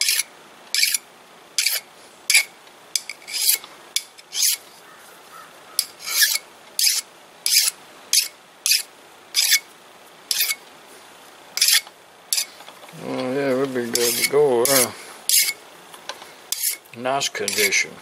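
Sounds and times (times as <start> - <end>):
hand file rasping on metal: 0.0 - 0.2, 0.8 - 1.0, 1.6 - 2.4, 3.0 - 3.6, 4.2 - 4.6, 5.8 - 9.6, 10.3 - 10.6, 11.6 - 12.5, 13.8 - 15.6, 16.5 - 16.8, 17.4 - 17.9.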